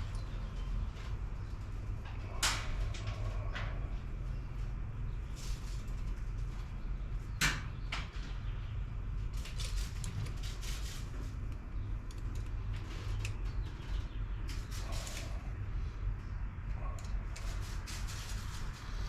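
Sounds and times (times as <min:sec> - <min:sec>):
steady low hum: 0:00.0 - 0:19.0
clicks and knocks on engine parts: 0:07.4 - 0:08.4.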